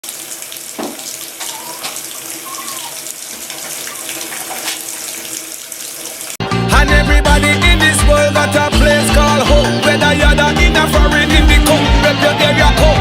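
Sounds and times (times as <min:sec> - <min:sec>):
tap water running into a basin: 0:00.0 - 0:06.4.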